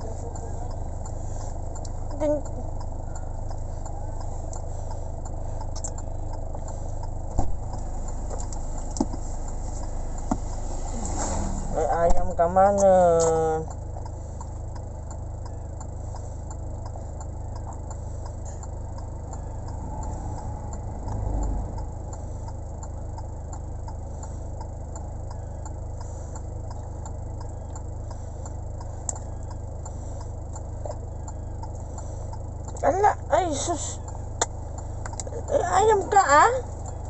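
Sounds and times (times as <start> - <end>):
faint ticking: 0.0 - 10.8, 11.8 - 37.0
vehicle drone inside cabin: 0.0 - 37.0.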